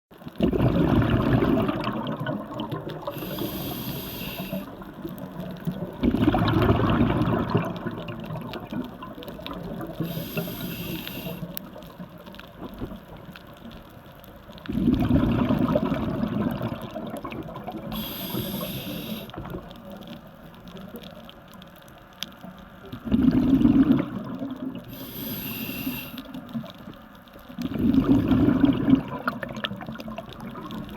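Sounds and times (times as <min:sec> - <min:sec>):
exhaled bubbles rushing: 0:00.3 - 0:13.3, 0:14.6 - 0:19.8, 0:22.9 - 0:25.4, 0:27.6 - 0:30.9
regulator hiss on inhale: 0:03.0 - 0:04.9, 0:09.9 - 0:11.8, 0:17.8 - 0:19.6, 0:24.8 - 0:26.6.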